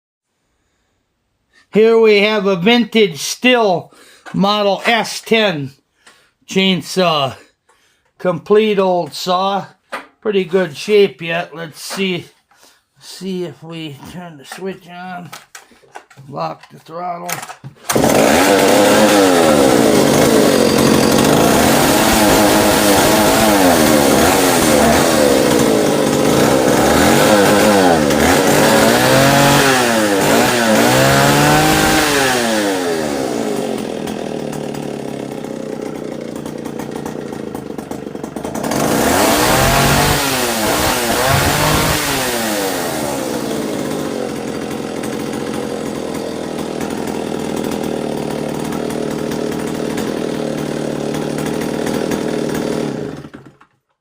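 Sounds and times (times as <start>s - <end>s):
chainsaw engine revving and idling: 17.4s - 53.8s.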